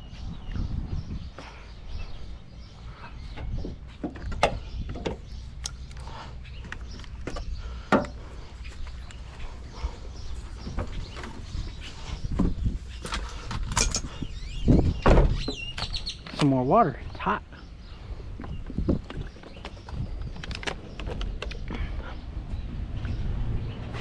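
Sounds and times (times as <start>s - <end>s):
clicks and knocks from handling parts: 3.4s - 8.2s, 12.4s - 14.3s, 15.5s - 16.6s, 18.4s - 21.9s.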